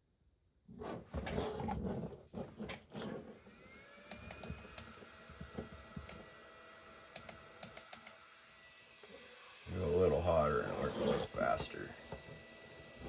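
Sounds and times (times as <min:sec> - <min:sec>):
soldering station electronic whine: 0:03.4 - 0:13.0.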